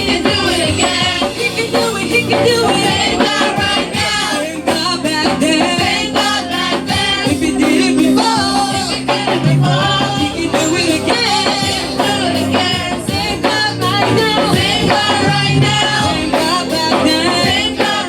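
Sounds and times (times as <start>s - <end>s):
instrumental backing with percussion: 0.0s - 18.0s
voices singing worship song: 0.0s - 18.0s.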